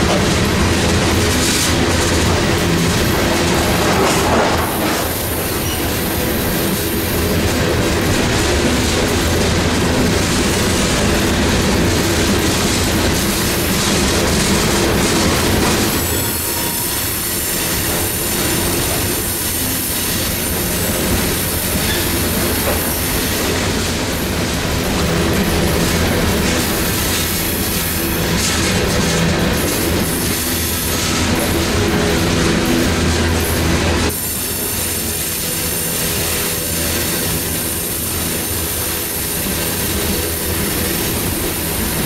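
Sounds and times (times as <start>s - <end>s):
wheels clacking over rail joints: 0.0s - 42.0s
high wheel squeal: 4.7s - 6.8s, 15.9s - 23.6s.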